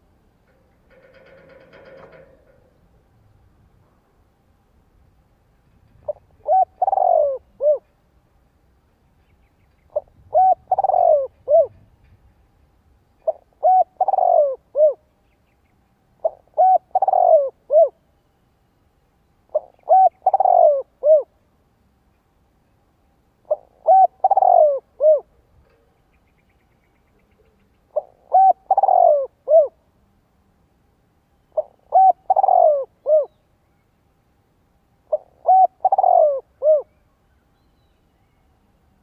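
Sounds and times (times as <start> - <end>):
dove cooing: 6.0 - 7.9, 9.9 - 11.9, 13.2 - 15.0, 16.2 - 18.0, 19.5 - 21.4, 23.4 - 25.4, 27.4 - 29.8, 31.6 - 33.4, 35.0 - 37.0.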